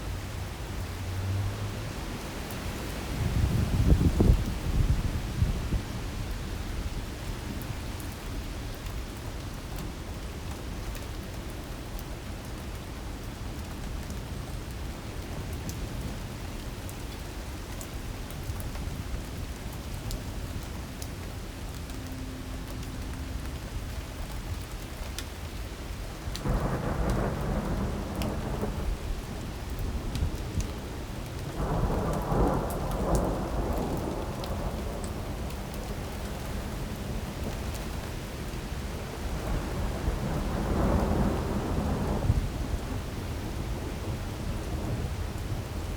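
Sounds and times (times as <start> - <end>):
heavy rain pouring: 0.0 - 45.9
raindrops ticking: 26.3 - 28.8, 29.7 - 38.7
rumbling thunder: 26.4 - 30.8, 31.5 - 37.9, 38.9 - 45.7.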